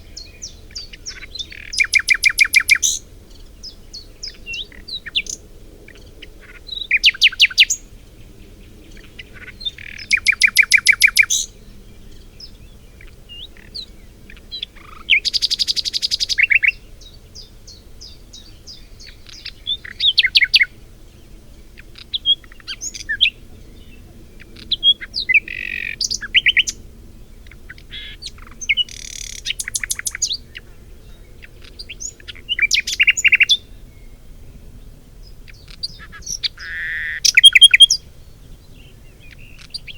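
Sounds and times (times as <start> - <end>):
songbirds trilling: 0.0 - 39.9
high bird chirps: 1.1 - 3.0, 9.7 - 11.5, 27.9 - 30.4, 35.6 - 38.0.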